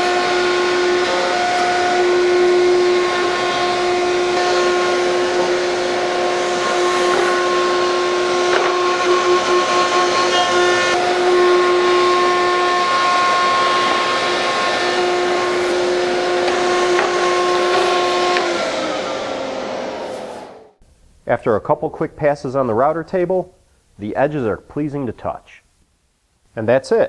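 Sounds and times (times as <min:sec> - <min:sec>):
router high whine: 0:00.0 - 0:20.8.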